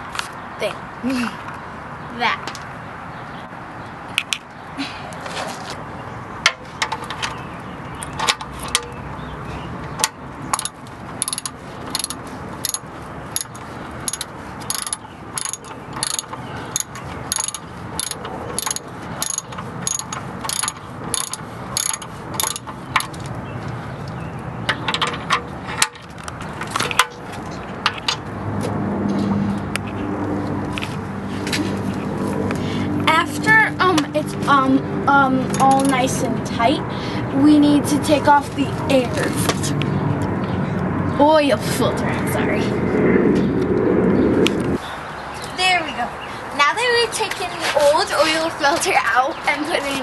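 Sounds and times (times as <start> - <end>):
ratchet wrench clicking: 10.5 - 23.2.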